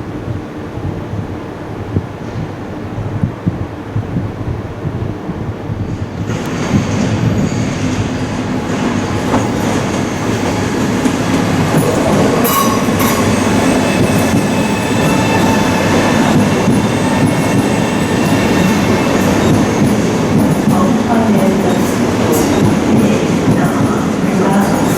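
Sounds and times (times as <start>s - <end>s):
train wheels rumbling on rails: 0.0s - 24.9s
thin high squealing tones: 12.4s - 20.2s.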